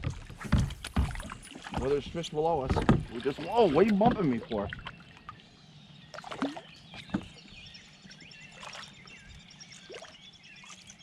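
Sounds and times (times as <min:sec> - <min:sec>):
faint bird chirps: 0:04.2 - 0:11.0.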